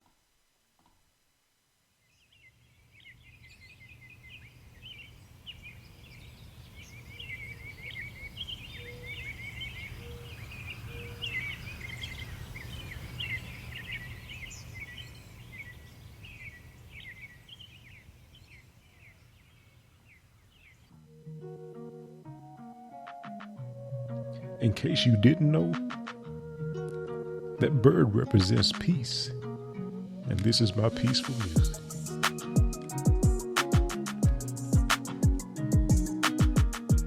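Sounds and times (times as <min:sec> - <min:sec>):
songbirds chirping: 0:01.9 - 0:37.0.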